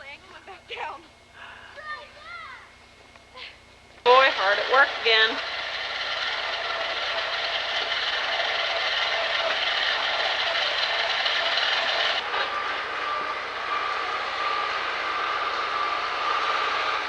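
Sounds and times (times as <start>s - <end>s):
snow-clearing machine engine rattling: 4.1s - 17.0s.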